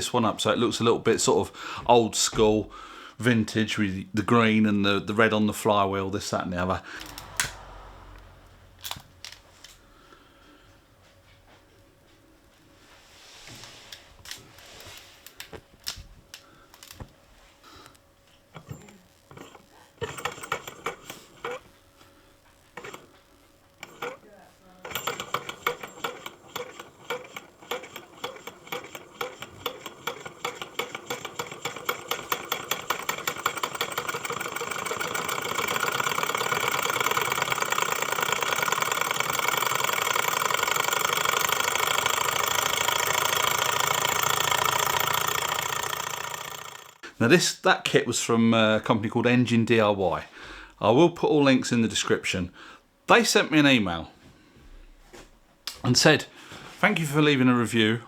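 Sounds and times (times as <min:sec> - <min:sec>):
stirling engine knocking and whirring: 0:06.8 - 0:10.0, 0:24.9 - 0:47.0.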